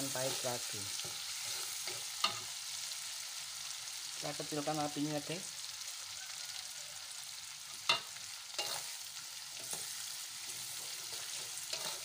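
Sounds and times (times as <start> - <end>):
metal spatula scraping wok: 0.0 - 2.6, 7.9 - 12.0
paste sizzling in hot oil: 0.0 - 12.0.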